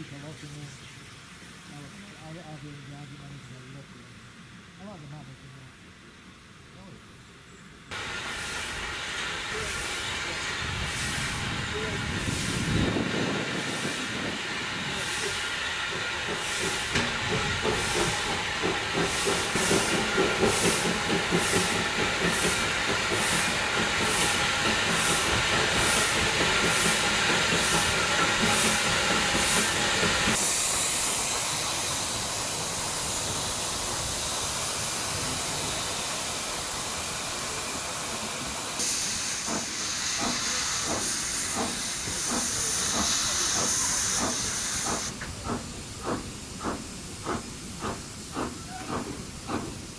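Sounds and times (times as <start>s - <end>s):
high-pitched steam hiss: 7.9s - 49.9s
steam hissing: 7.9s - 49.9s
steam locomotive exhaust chuffs: 7.9s - 49.9s.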